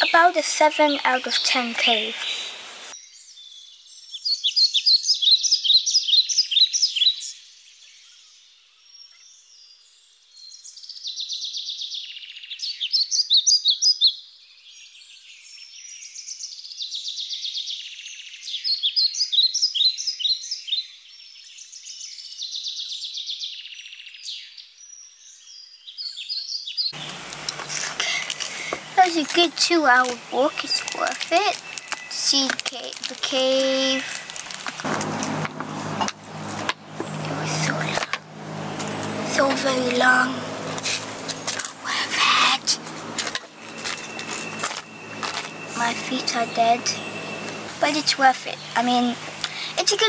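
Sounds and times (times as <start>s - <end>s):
birds singing quick high chirps: 0.0s - 27.8s, 28.5s - 32.6s, 43.4s - 50.0s.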